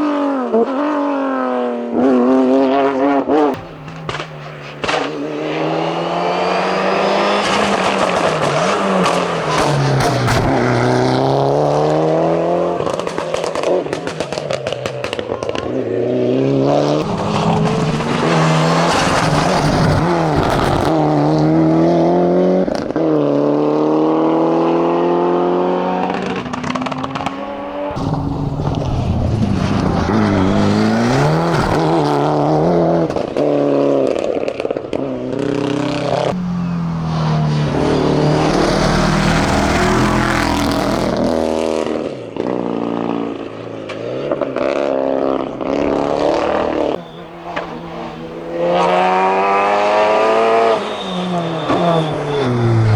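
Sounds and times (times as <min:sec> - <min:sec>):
race car engine revving: 0:00.0 - 0:52.9
exhaust cracks and pops: 0:03.6 - 0:06.0, 0:07.2 - 0:11.9, 0:12.8 - 0:21.0, 0:26.0 - 0:41.4.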